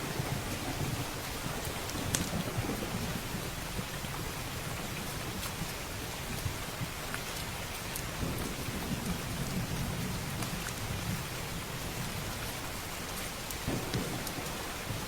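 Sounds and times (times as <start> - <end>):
distant thunder rumble: 0.0 - 4.4, 13.6 - 15.0
steady rain: 0.0 - 15.0.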